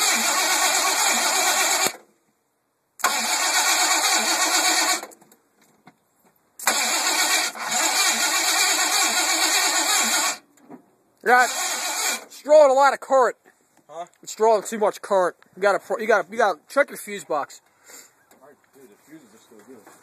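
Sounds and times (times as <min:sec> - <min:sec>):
starter motor cranking engine: 0:00.0 - 0:02.0, 0:03.0 - 0:05.1, 0:06.6 - 0:10.5, 0:11.3 - 0:12.4.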